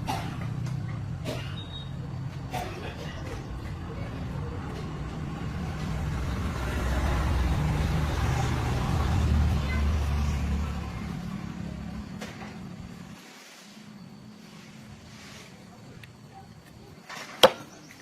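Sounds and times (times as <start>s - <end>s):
large engine rumbling: 0.0s - 13.2s.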